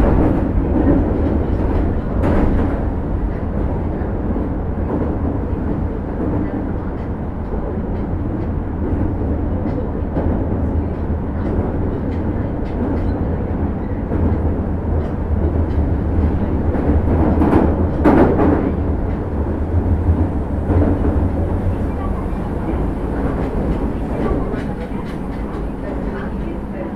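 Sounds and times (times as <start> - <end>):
subway train wheels rumbling: 0.0 - 26.9
faint rail clicks: 6.2 - 26.9.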